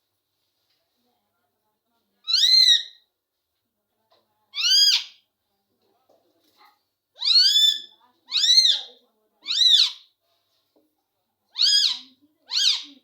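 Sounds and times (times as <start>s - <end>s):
parrot squawking: 2.3s - 3.0s, 7.2s - 10.0s, 11.6s - 13.0s.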